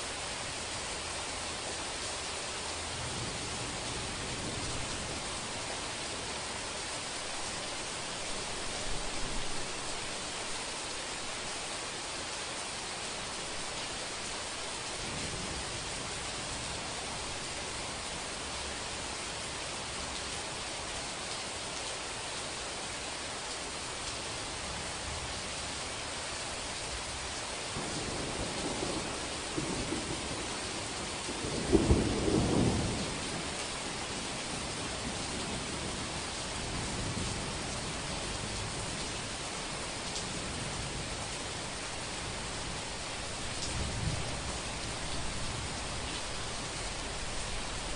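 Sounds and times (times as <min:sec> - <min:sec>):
steady rain falling: 0:00.0 - 0:47.9
low thunder rumble: 0:27.8 - 0:33.6.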